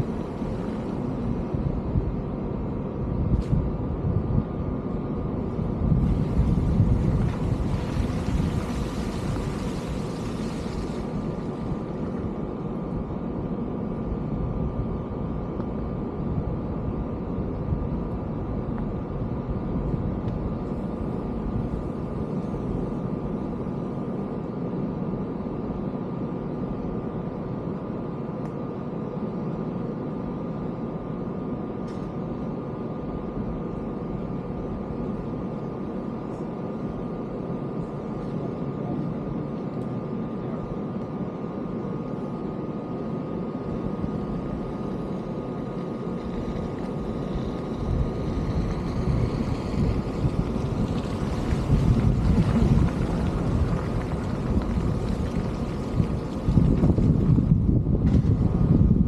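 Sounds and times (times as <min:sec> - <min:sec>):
low mechanical hum: 0:00.0 - 0:59.0
rushing hiss: 0:07.2 - 0:11.6.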